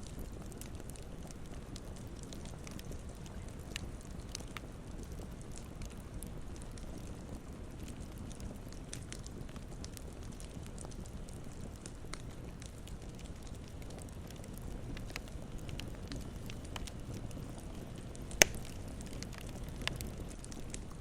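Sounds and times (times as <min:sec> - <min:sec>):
campfire crackling: 0:00.0 - 0:21.0
loud sharp pop: 0:18.4 - 0:18.7.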